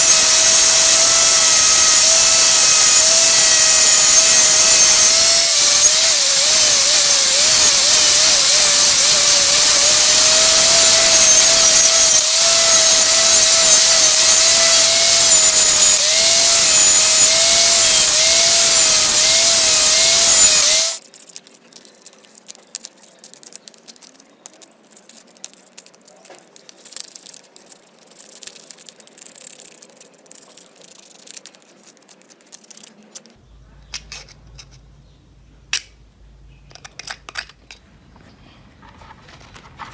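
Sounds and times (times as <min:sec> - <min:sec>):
power tool motor whine: 0:00.0 - 0:21.0
faint clicks and handling: 0:21.0 - 0:34.9, 0:36.6 - 0:39.9.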